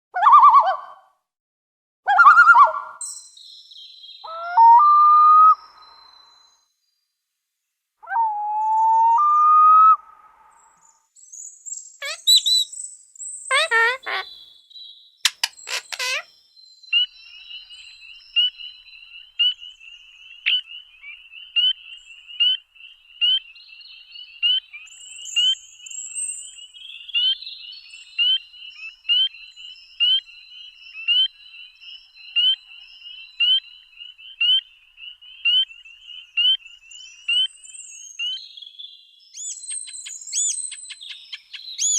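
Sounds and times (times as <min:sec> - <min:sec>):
fast sweeping bird calls: 0:12.0 - 0:12.7, 0:13.5 - 0:14.4, 0:15.3 - 0:16.2
high bird trill: 0:12.0 - 0:12.8, 0:13.5 - 0:14.4, 0:15.3 - 0:16.3
sharp bird chirp: 0:12.0 - 0:12.8, 0:13.5 - 0:14.4, 0:15.3 - 0:16.3, 0:39.4 - 0:41.9.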